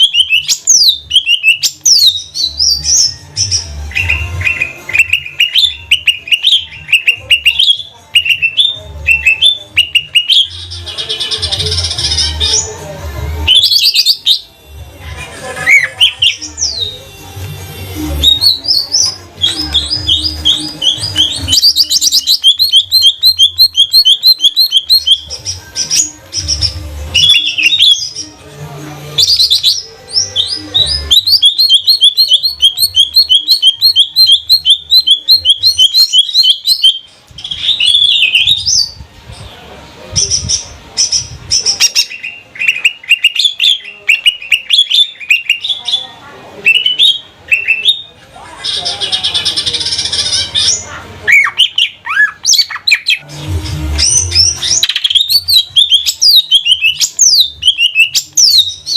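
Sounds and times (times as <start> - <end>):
bird singing: 0.0 - 12.8, 18.2 - 28.3, 29.2 - 39.0, 53.9 - 58.9.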